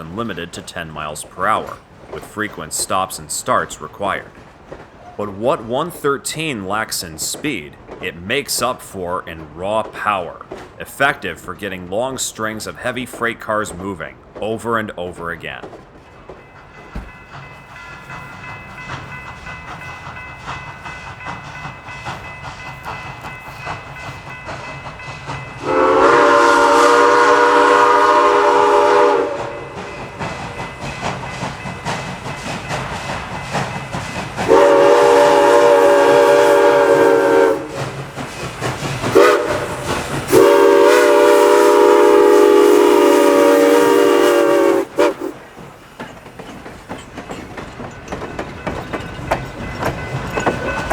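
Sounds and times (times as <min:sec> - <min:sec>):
locomotive and train running: 0:00.0 - 0:50.9
steam whistle blasts: 0:25.6 - 0:29.8, 0:34.5 - 0:37.8, 0:39.1 - 0:45.4.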